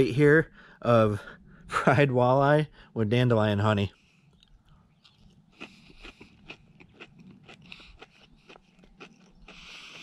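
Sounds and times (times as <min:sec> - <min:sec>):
man chewing crunchy food: 0:03.9 - 0:10.0
mouth clicks: 0:04.3 - 0:10.0.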